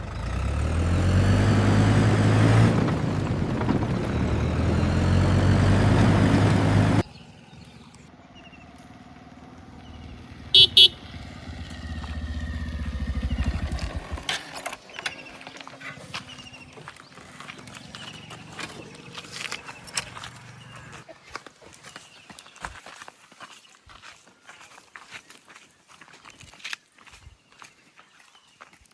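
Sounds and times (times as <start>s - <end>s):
heavy engine running: 0.0s - 21.1s
quieter engine: 0.0s - 22.2s
vehicle horn toots: 10.5s - 11.3s.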